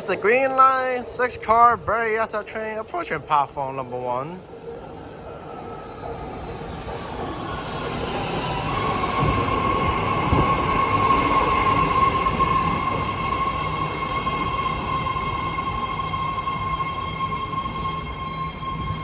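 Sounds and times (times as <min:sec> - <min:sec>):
train running noise: 0:04.4 - 0:19.0.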